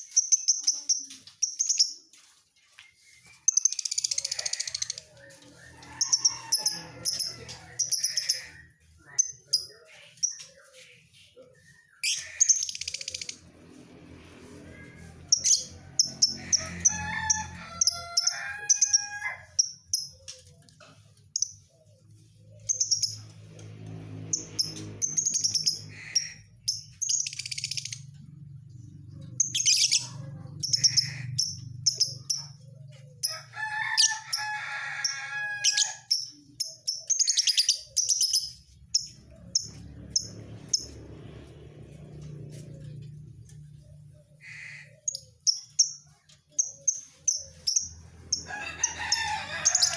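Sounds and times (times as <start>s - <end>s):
lovebird chirps and trills: 0.0s - 2.0s, 22.6s - 23.3s, 29.4s - 32.6s, 36.0s - 41.0s, 45.0s - 48.5s.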